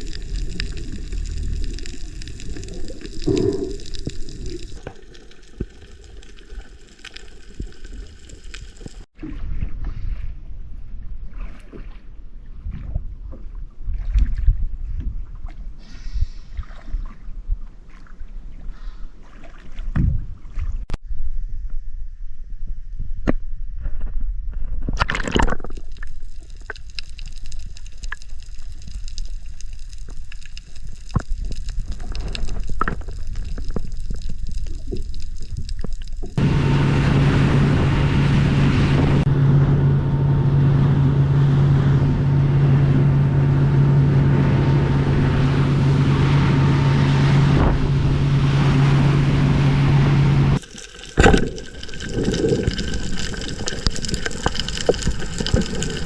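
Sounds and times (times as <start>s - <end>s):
water sloshing and gurgling: 0.0s - 21.0s, 24.6s - 56.0s
steady engine hum: 36.4s - 50.6s.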